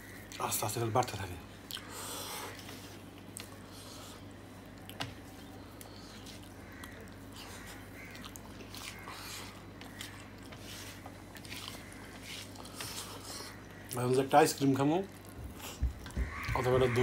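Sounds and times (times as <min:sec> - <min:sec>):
man chewing: 0:01.6 - 0:14.0, 0:15.1 - 0:16.2.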